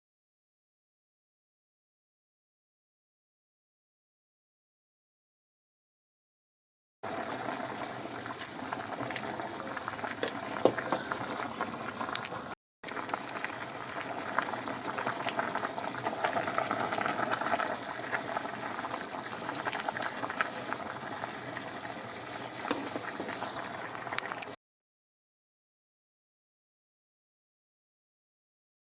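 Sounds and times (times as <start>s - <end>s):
liquid bubbling and crackling: 7.0s - 24.6s.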